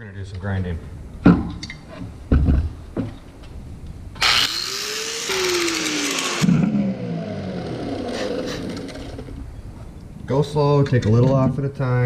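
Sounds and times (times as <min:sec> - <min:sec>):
power grinder grinding metal: 0:04.2 - 0:09.4.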